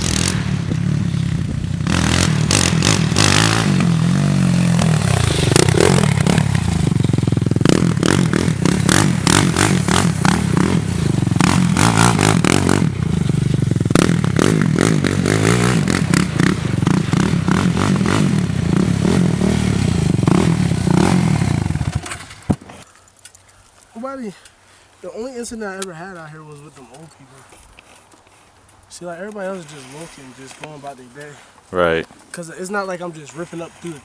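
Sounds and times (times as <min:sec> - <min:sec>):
off-road vehicle engine running: 0:00.0 - 0:22.5.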